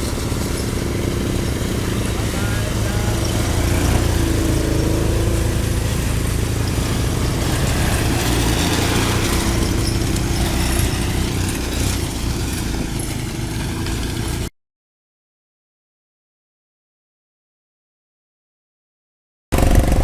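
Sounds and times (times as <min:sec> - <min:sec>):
vehicle engine running: 0:00.0 - 0:14.5, 0:19.6 - 0:20.0
steady rushing noise: 0:19.6 - 0:20.0.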